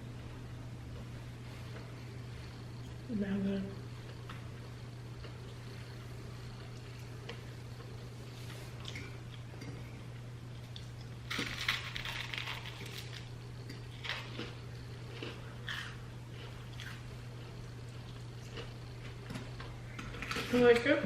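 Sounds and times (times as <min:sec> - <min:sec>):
steady low hum: 0:00.0 - 0:21.0
chewing: 0:04.0 - 0:20.8
scraping and crunching: 0:10.8 - 0:17.5.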